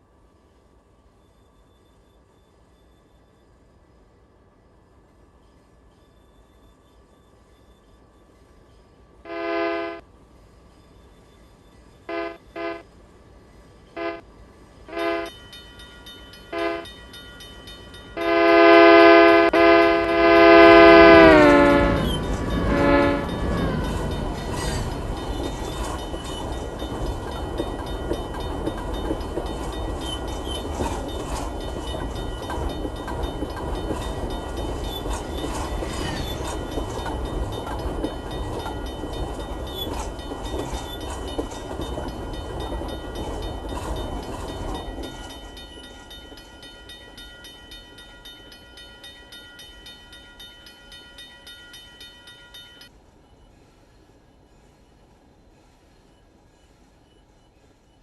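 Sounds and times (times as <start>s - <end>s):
train wheels clicking: 14.9s - 53.0s
freight train wheels clattering: 19.2s - 52.9s.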